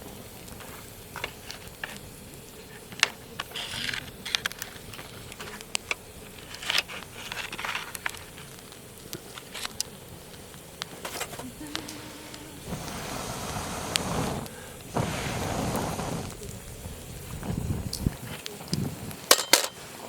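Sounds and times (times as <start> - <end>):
campfire crackling and popping: 0.0 - 20.0
short hissing rushes: 11.3 - 19.1.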